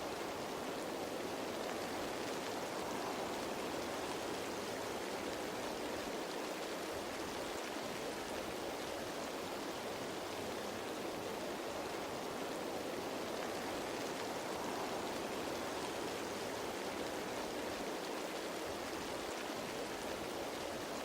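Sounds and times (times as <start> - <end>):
rain falling on leaves: 0.0 - 21.0.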